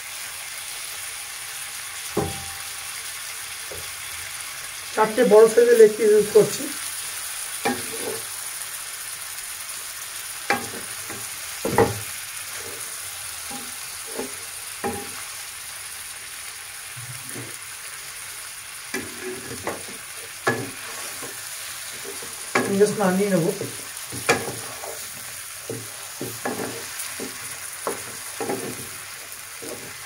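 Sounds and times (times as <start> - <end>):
chicken sizzling in oil: 0.0 - 30.0
spatula scraping pan: 7.6 - 8.3, 10.5 - 15.3, 18.9 - 30.0.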